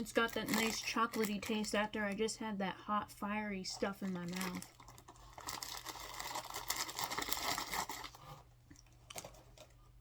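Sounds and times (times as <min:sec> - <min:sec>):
plastic packaging crinkling: 0:00.0 - 0:02.2, 0:03.7 - 0:09.8.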